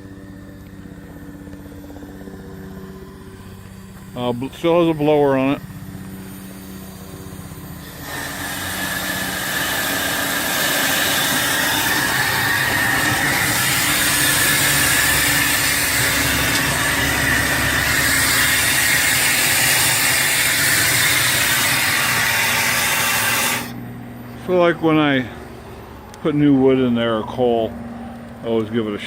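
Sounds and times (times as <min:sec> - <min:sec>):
steam jet hissing: 0:07.8 - 0:23.8.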